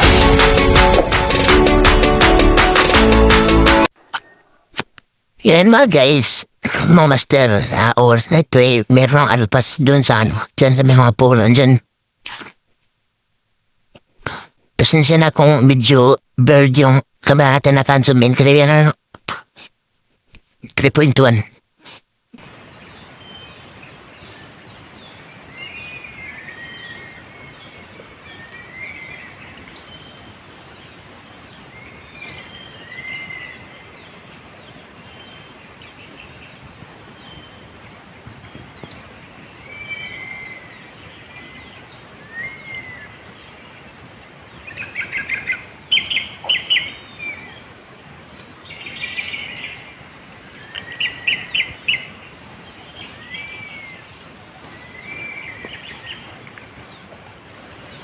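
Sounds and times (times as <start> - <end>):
parrots chirping and chattering: 31.4 - 51.7.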